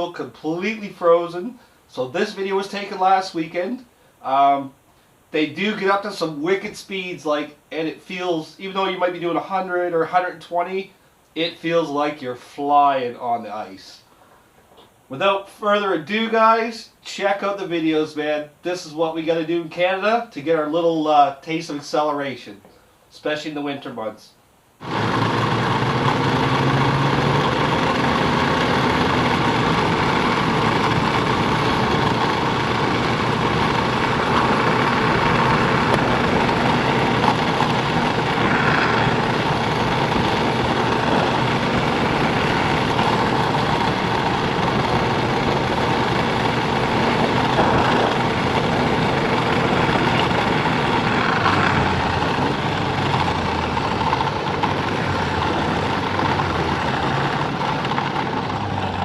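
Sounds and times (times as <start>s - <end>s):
snowmobile engine and track noise: 24.8s - 59.0s.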